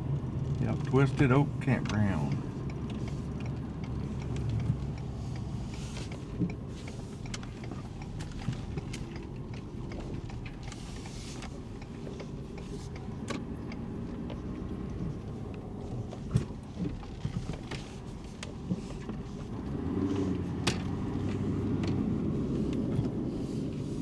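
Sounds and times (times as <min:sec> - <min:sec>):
engine and road rumble: 0:00.0 - 0:24.0
small clicks and rattles: 0:00.4 - 0:19.5.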